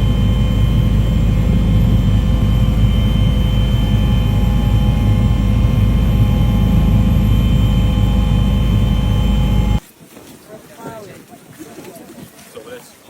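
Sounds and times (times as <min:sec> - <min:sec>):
constant whining tones: 0:00.0 - 0:09.8
engine drone: 0:00.0 - 0:09.8.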